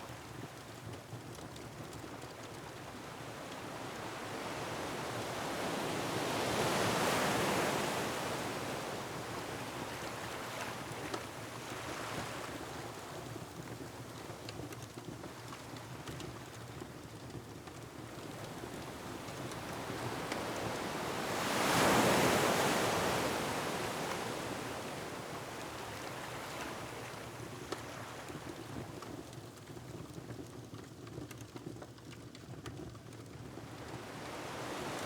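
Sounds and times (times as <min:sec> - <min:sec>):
ocean surf on rocky shore: 0:04.0 - 0:11.0, 0:18.3 - 0:28.5, 0:33.8 - 0:35.0
wood fire crackling: 0:12.3 - 0:20.8.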